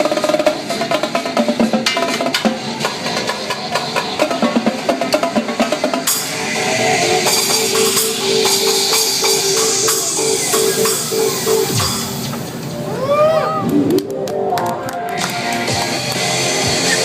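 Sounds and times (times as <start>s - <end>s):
live drumming: 0.0s - 12.6s
cymbal crash: 1.8s - 12.3s
dance music: 2.5s - 17.0s.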